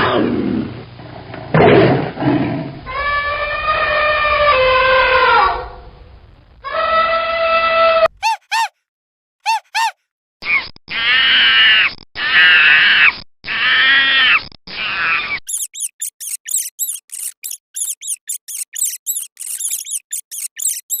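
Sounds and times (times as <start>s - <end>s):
long drawn-out animal calls: 10.9s - 21.0s
rat squeaking: 13.6s - 21.0s.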